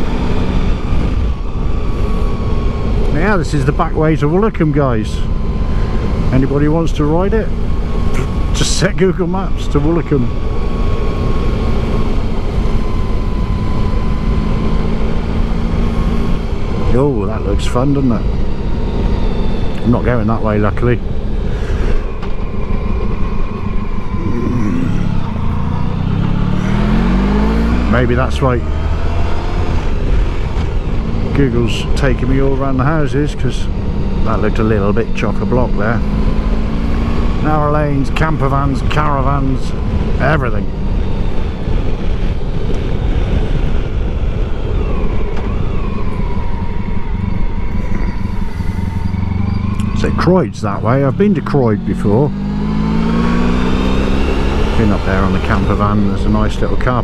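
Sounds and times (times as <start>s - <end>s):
motorcycle engine revving: 0.0s - 57.0s
wind rumble on microphone: 37.7s - 51.9s.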